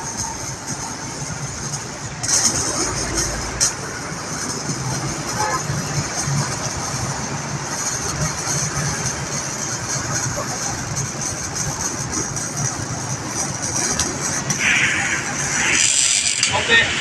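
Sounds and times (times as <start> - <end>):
welding arc crackling sizzle: 11.6 - 17.0.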